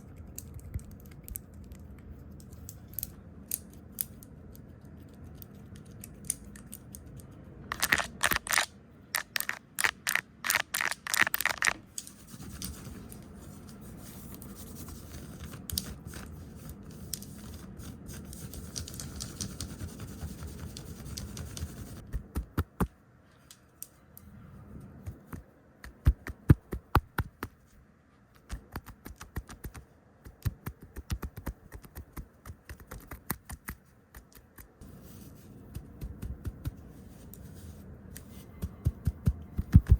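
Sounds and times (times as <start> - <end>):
soft brushing or rubbing: 34.8 - 38.8.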